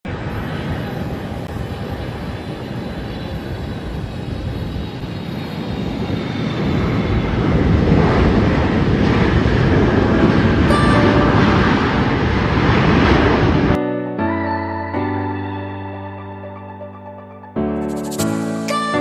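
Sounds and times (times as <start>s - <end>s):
jet engine roar: 0.1s - 13.8s.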